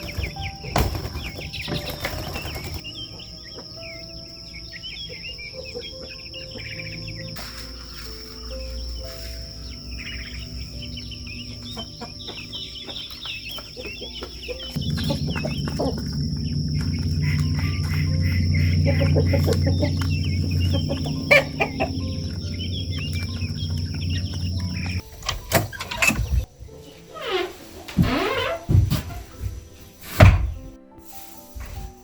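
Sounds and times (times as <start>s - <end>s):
chickens clucking: 0.0s - 27.0s
chicks peeping: 0.0s - 27.0s
low steady hum: 14.8s - 25.0s.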